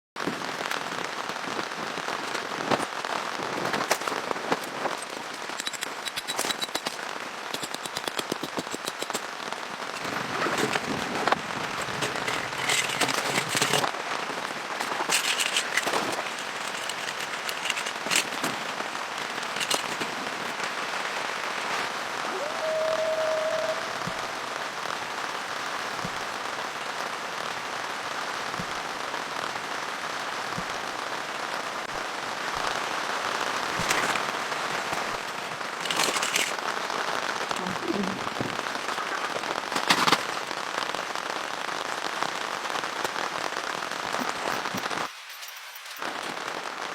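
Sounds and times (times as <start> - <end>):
rain drops pattering on surface: 0.2 - 46.9.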